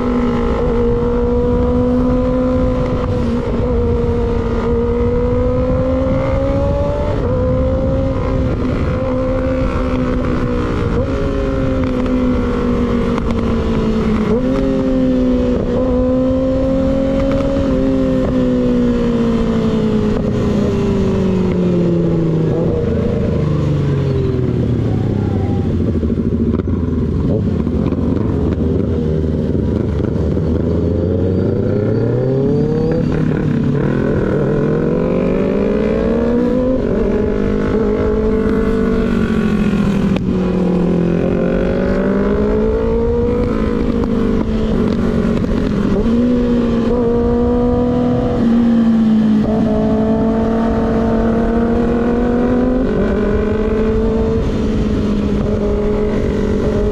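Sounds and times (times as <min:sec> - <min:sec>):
wind rush: 0:00.0 - 0:30.7
motorcycle engine revving: 0:00.0 - 0:56.9.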